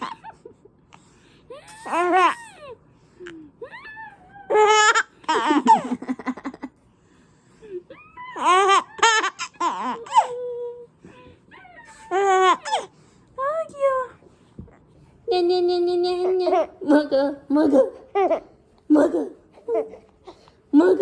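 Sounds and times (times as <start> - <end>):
baby laughing: 4.5 - 6.7, 8.4 - 10.4, 12.1 - 12.9.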